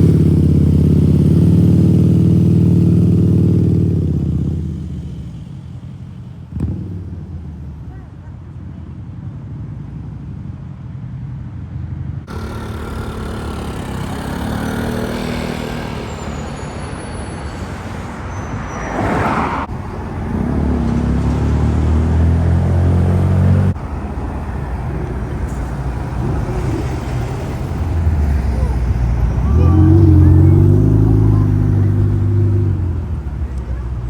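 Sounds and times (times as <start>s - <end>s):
deep engine rumble: 0.0s - 10.3s, 12.1s - 34.0s
street traffic: 0.0s - 34.0s
vehicle passing by: 12.2s - 34.0s.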